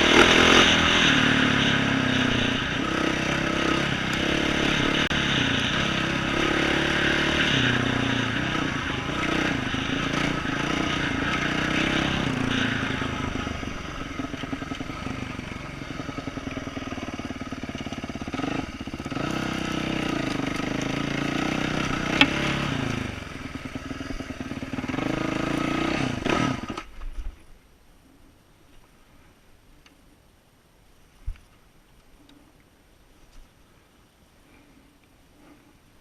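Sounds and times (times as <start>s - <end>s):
motorbike engine revving: 0.0s - 26.9s.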